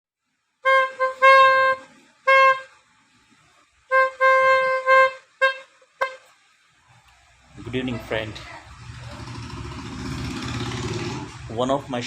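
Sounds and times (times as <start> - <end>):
horn honking: 0.6 - 2.9, 3.8 - 6.6.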